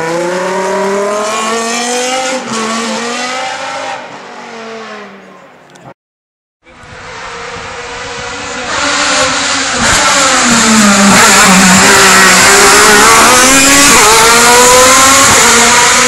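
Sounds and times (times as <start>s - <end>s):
race car engine revving: 6.7s - 16.0s.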